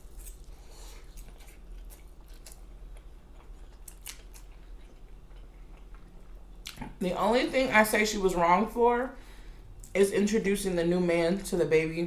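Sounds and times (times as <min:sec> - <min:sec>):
person chewing food: 0:00.0 - 0:07.0
faint low hum: 0:00.0 - 0:12.0.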